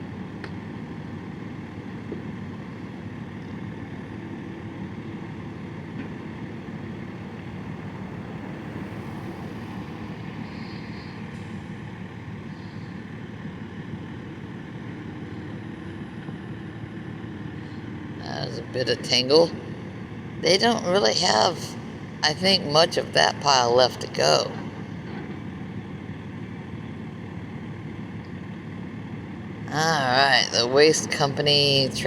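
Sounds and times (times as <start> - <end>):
distant vehicle engine rumble: 0.0 - 32.0
wind: 0.0 - 32.0
water noise: 6.2 - 11.7.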